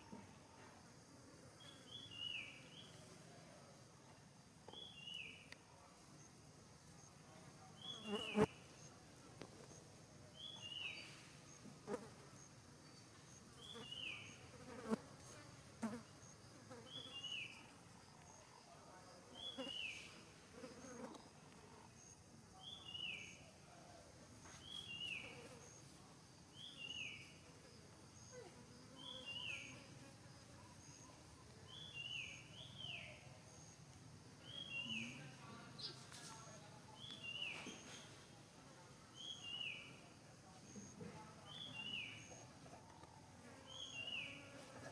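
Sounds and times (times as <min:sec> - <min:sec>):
high insect buzz: 0:07.9 - 0:08.7, 0:13.6 - 0:17.8, 0:24.6 - 0:30.6, 0:43.4 - 0:44.9.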